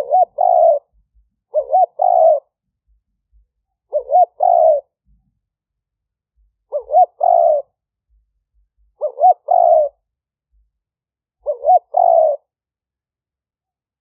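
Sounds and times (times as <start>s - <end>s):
dove cooing: 0.0s - 2.6s, 3.9s - 5.0s, 6.7s - 7.8s, 8.8s - 10.1s, 11.4s - 12.5s.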